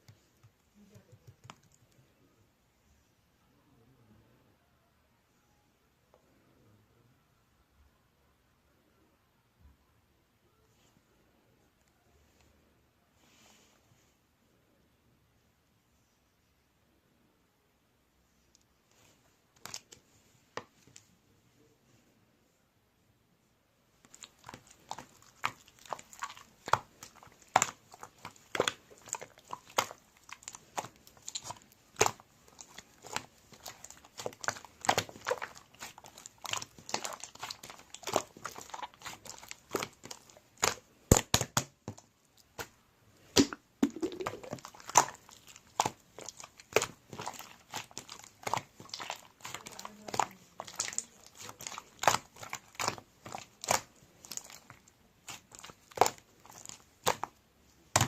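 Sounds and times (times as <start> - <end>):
crinkling and clicking: 24.0 - 42.7.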